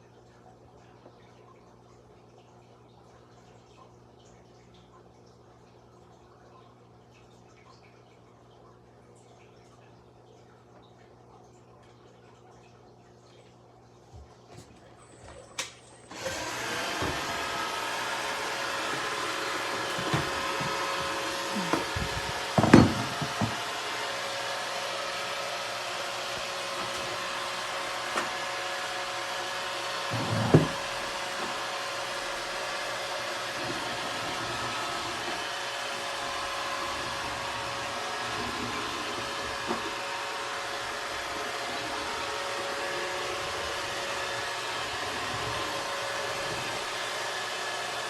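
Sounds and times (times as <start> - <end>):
robot vacuum whirring: 16.1 - 48.0.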